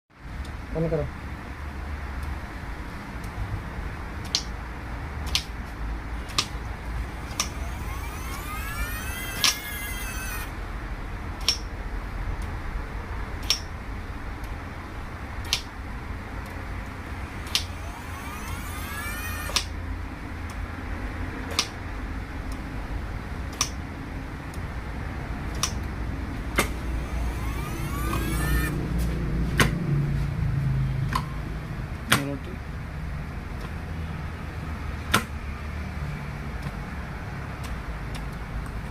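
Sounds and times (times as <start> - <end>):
sharp clicks: 5.2 - 5.6, 6.2 - 10.6, 11.4 - 11.7, 13.4 - 13.7, 15.4 - 15.8, 16.4 - 19.8, 25.5 - 28.8
hydraulic pump whine: 6.0 - 10.7, 16.1 - 20.6, 25.6 - 29.2
low hum: 6.0 - 10.7, 16.0 - 20.6, 25.8 - 30.6.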